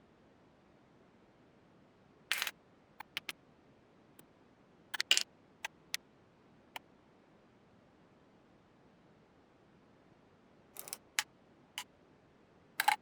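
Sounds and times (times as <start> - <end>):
small hard parts clicking: 2.3 - 3.3, 5.0 - 5.2, 10.8 - 11.2, 12.8 - 13.0.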